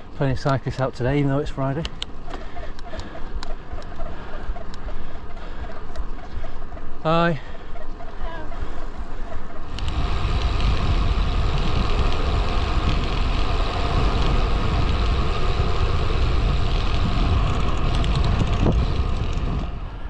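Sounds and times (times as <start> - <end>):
wind rumble on microphone: 8.0 - 20.0.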